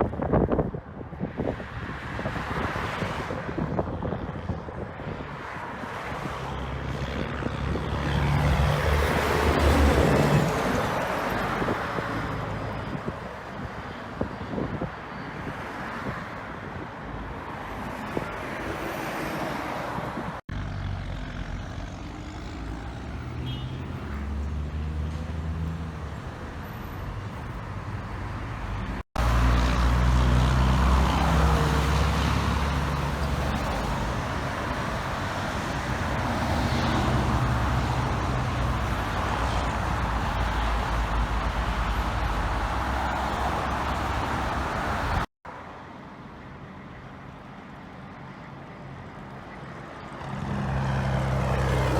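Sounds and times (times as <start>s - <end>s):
traffic noise: 0.0s - 51.9s
truck diesel exhaust: 20.5s - 45.3s.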